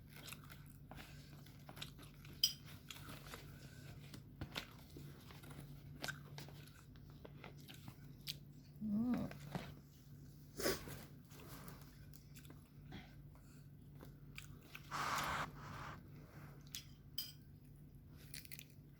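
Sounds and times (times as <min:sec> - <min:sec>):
chewing and crunching: 0:00.0 - 0:10.0, 0:11.3 - 0:14.9, 0:18.1 - 0:18.9
steady low hum: 0:14.8 - 0:17.0.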